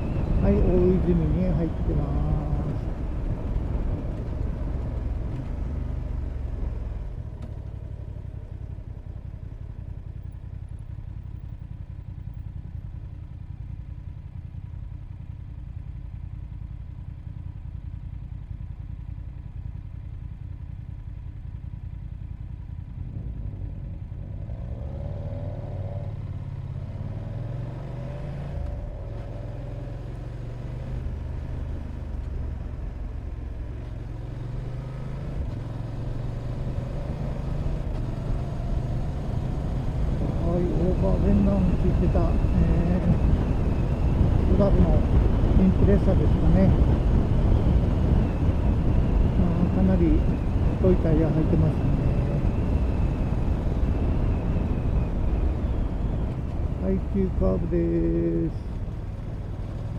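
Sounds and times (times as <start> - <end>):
road noise: 0.0 - 15.0, 21.9 - 59.9
motorcycle engine running: 0.0 - 59.9.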